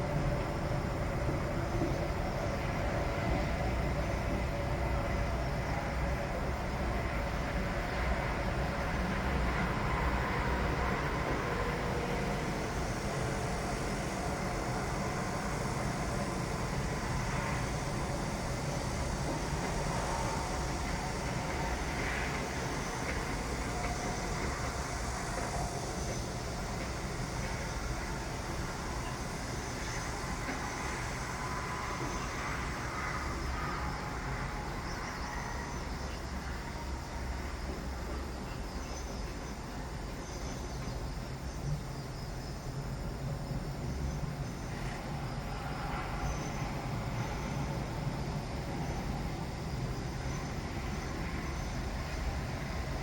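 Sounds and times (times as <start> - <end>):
construction machinery rumble: 0.0 - 41.1
faint steady whine: 0.0 - 53.0.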